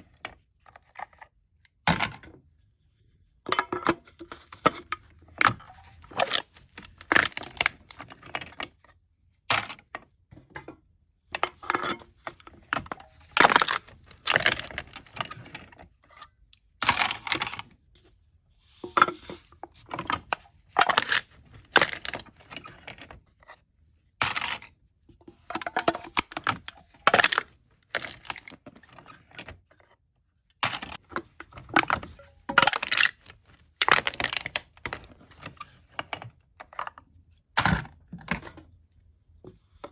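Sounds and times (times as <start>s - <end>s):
aluminium cans being crushed: 3.5s - 8.8s, 11.4s - 15.7s, 16.8s - 17.7s, 18.8s - 23.2s, 24.2s - 24.8s, 25.5s - 29.4s, 30.6s - 37.0s.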